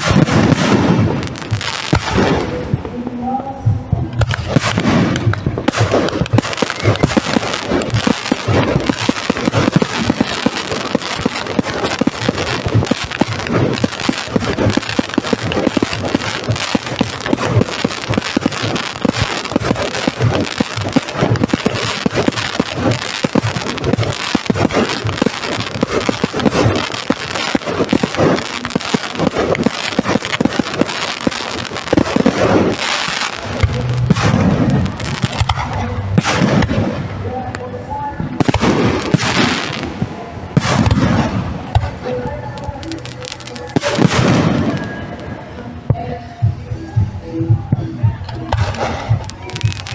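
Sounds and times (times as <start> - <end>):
fireworks bangs and crackling: 0.0 - 49.9
low rumble: 33.4 - 38.8.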